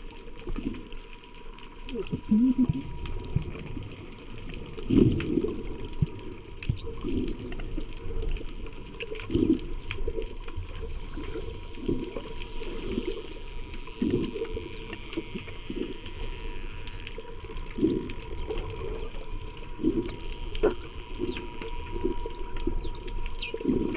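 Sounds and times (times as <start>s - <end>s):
dolphins whistling underwater: 6.6s - 10.1s, 10.8s - 23.9s.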